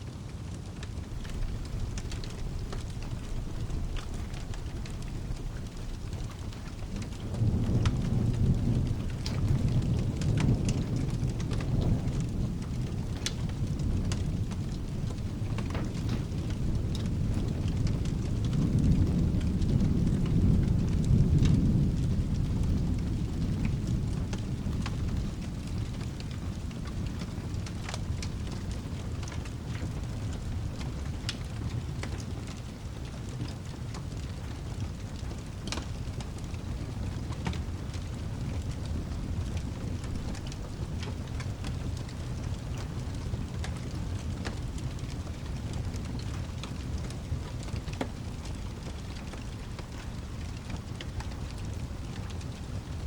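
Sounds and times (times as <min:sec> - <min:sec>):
steady rain: 0:00.0 - 0:53.0
rolling thunder: 0:00.7 - 0:53.0.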